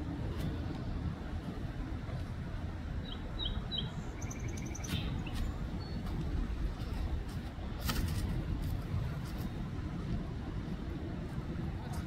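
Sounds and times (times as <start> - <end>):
small birds chirping: 3.0 - 6.2.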